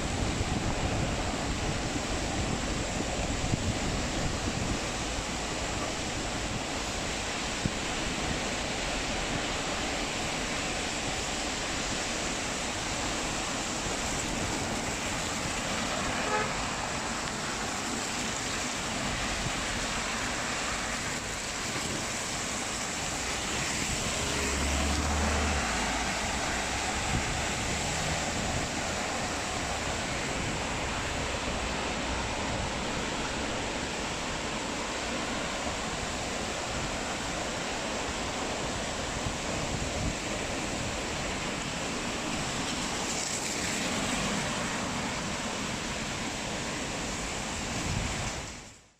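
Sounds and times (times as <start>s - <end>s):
traffic on wet street: 0.0s - 48.9s
car horn toot: 15.9s - 16.7s
vehicle passing with rumble: 23.6s - 28.5s.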